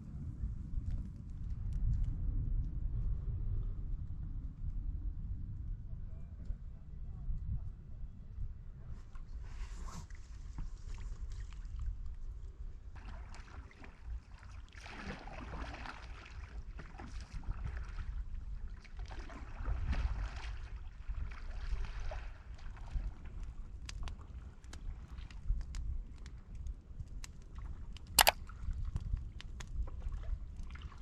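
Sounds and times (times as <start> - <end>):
canoe paddle splashing: 13.0 - 18.0, 18.9 - 22.9.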